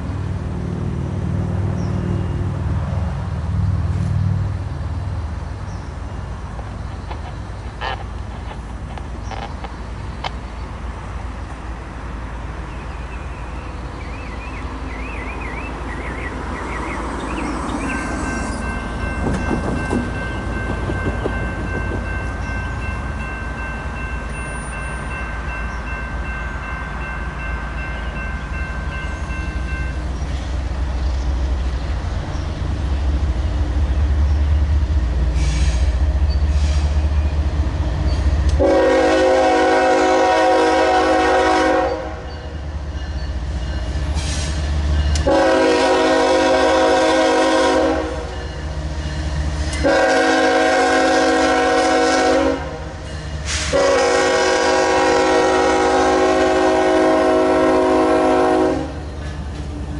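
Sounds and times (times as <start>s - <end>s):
diesel locomotive rumble: 0.0s - 59.9s
train air horn blast: 38.6s - 42.3s, 45.2s - 48.3s, 49.7s - 59.0s.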